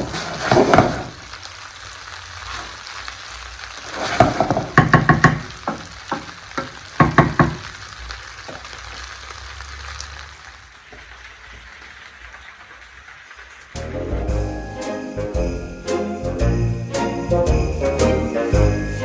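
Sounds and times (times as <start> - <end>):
food sizzling in a pan: 0.0 - 17.7
utensil knocking against pan: 4.2 - 7.6.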